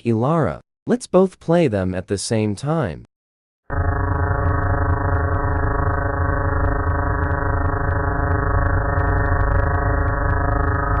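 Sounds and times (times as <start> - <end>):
low buzzing synthesized drone: 3.7 - 11.0.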